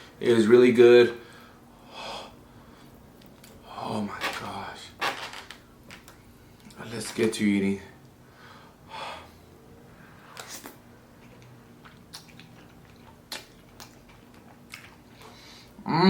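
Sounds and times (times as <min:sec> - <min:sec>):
person biting and chewing food: 0:10.2 - 0:15.4
wet mouth clicks and smacks: 0:10.3 - 0:15.3.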